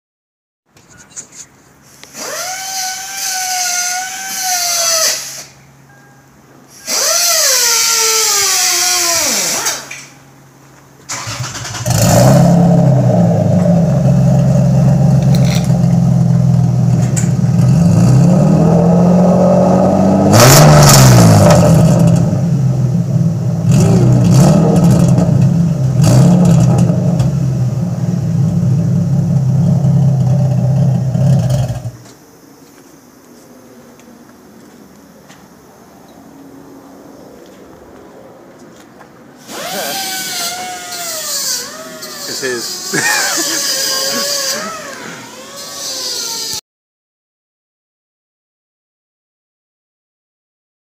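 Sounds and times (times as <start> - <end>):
starter motor whine: 11.1 - 12.7, 39.4 - 46.6
car engine idling and revving: 11.1 - 32.1.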